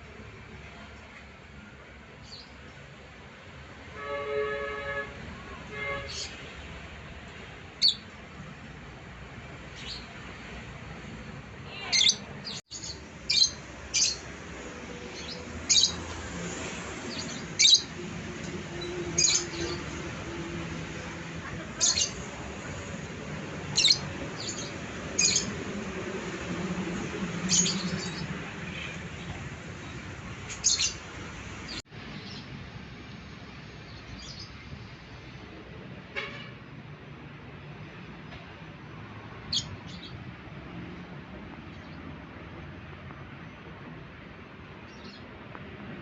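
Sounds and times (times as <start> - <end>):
lovebird chirping: 17.2 - 17.9, 23.8 - 25.5.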